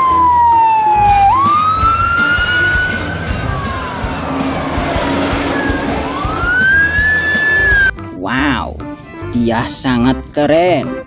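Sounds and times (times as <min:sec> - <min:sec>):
fire engine siren wailing: 0:00.0 - 0:07.9.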